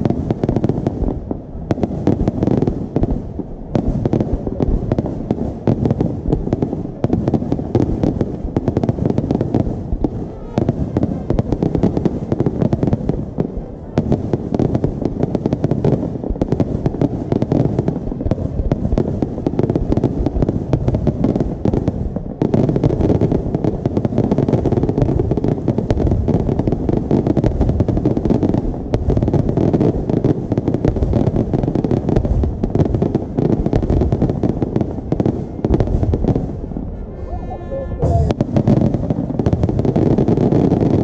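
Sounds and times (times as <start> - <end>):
fireworks bangs and crackles: 0.0 - 37.2, 38.0 - 41.0.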